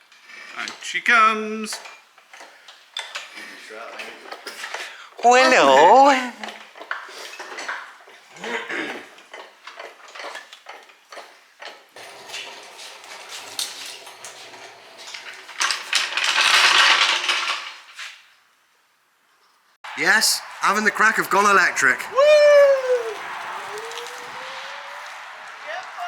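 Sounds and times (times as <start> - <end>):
metal tools clinking and rattling: 6.4 - 17.8.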